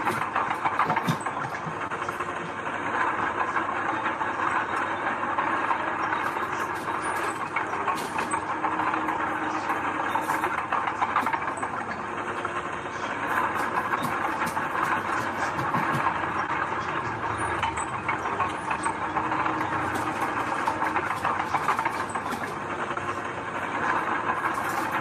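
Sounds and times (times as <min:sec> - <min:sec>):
metal clanks and rattles: 0:00.0 - 0:02.2, 0:17.4 - 0:22.6
heavy machinery diesel engine running: 0:00.0 - 0:25.0.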